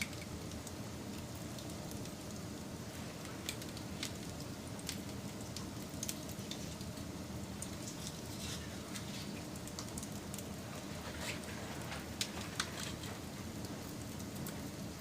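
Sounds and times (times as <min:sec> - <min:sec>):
fire popping and crackling: 0:00.0 - 0:15.0
wood fire burning: 0:00.0 - 0:15.0.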